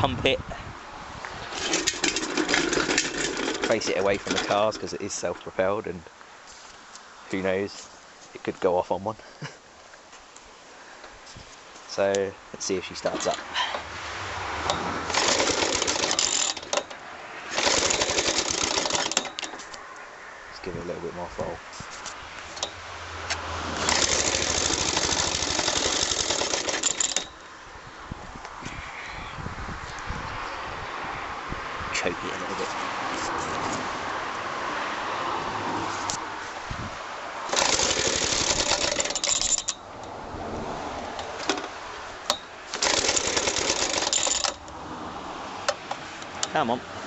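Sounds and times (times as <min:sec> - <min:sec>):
mower engine running: 0:01.6 - 0:04.8, 0:14.7 - 0:19.5, 0:23.7 - 0:27.4, 0:37.4 - 0:39.7, 0:42.7 - 0:44.6.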